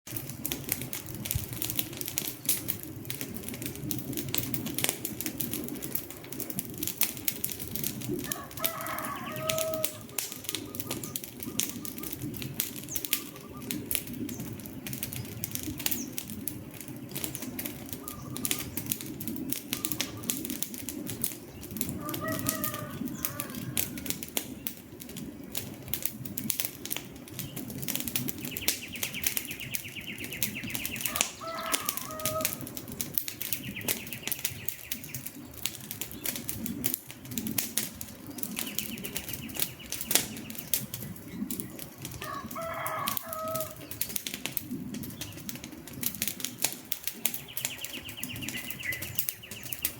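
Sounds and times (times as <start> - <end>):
wood fire crackling and popping: 0.1 - 49.9
warbling bird calls: 7.9 - 24.9, 26.9 - 37.4, 38.2 - 45.6, 46.4 - 49.9.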